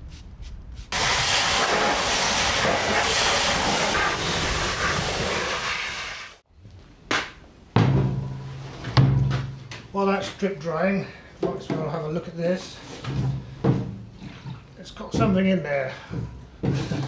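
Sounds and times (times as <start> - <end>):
liquid spraying onto steel: 0.9 - 6.4.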